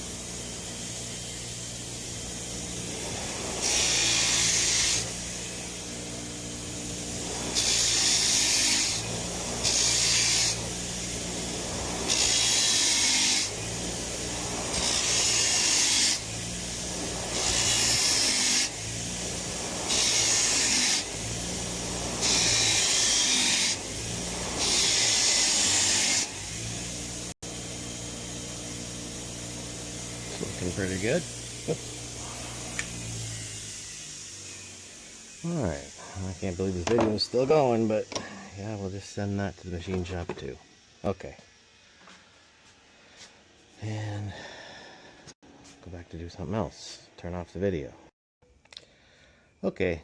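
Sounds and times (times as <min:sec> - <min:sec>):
wire wheel scratching metal: 0:00.0 - 0:27.2, 0:28.6 - 0:33.7
power tool motor running: 0:00.0 - 0:43.8.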